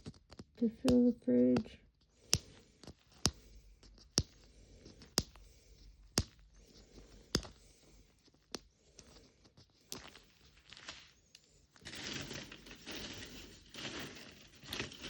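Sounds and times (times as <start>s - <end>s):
sharp plastic clicks: 0.0s - 7.8s
faint rustling: 6.6s - 15.0s.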